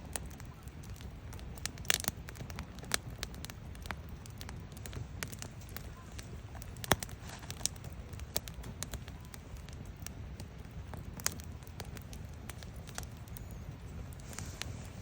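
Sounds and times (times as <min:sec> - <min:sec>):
firewood crackling and popping: 0:00.0 - 0:15.0
low fire rumble: 0:00.0 - 0:15.0.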